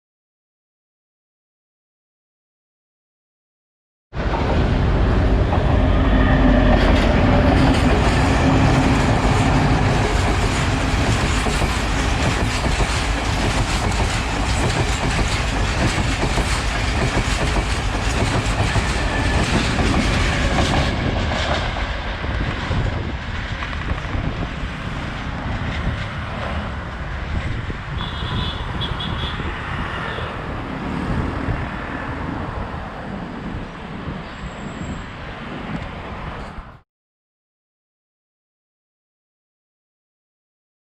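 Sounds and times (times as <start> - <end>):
train rumble: 4.2 - 36.7
wheels clacking over rail joints: 6.6 - 27.3.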